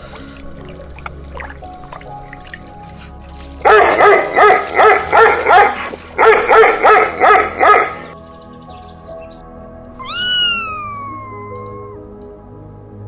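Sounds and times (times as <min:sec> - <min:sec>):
dog barking: 0:03.6 - 0:08.2.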